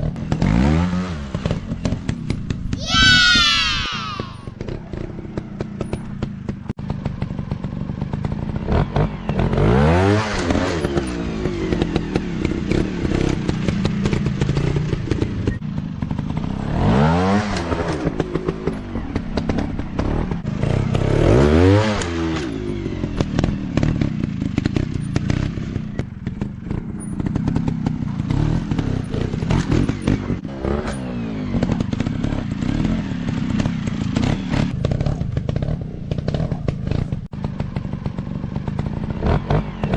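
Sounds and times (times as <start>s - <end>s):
dirt bike engines revving: 2.8s - 6.2s.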